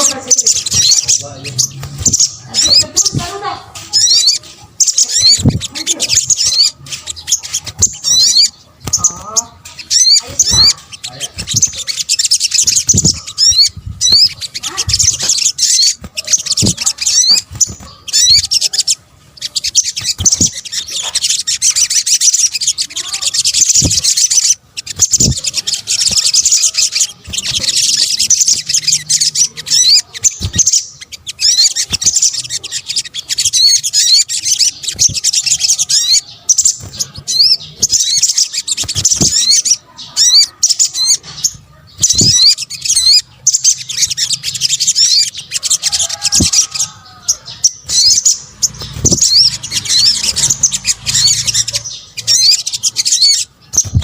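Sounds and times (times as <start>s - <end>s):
bird twittering chirps: 0.0s - 54.0s.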